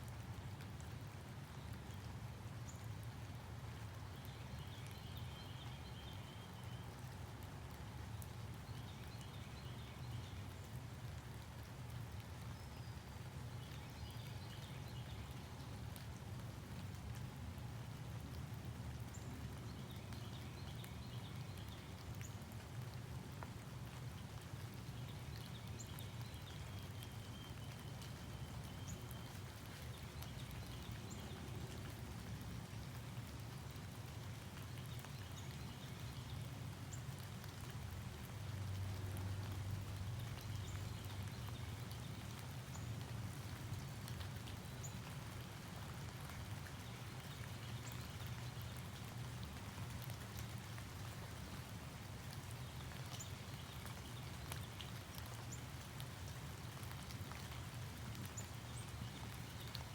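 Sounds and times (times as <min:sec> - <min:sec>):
water dripping: 0:18.2 - 0:59.9.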